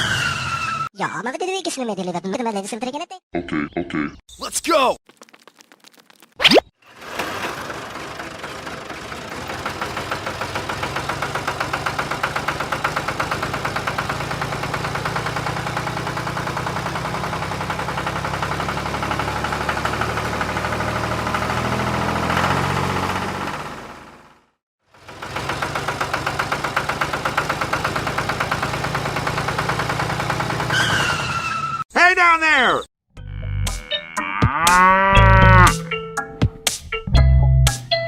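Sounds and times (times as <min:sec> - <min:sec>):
small engine knocking: 0:06.9 - 0:24.2, 0:24.9 - 0:31.3.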